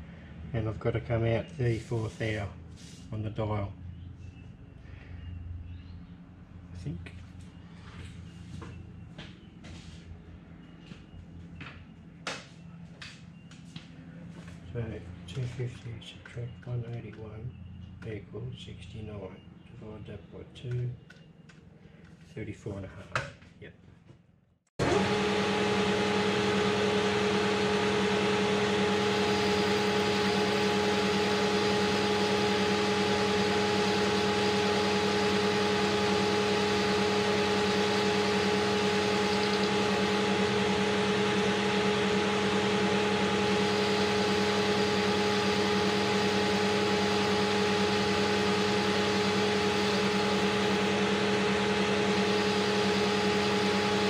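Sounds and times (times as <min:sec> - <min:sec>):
metal lathe humming and whining: 0:24.8 - 0:54.0.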